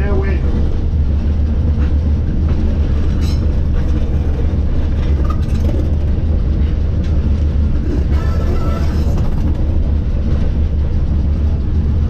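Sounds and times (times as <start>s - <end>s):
streetcar rumbling on track: 0.0s - 12.0s
high-pitched wheel squeal: 7.8s - 9.5s.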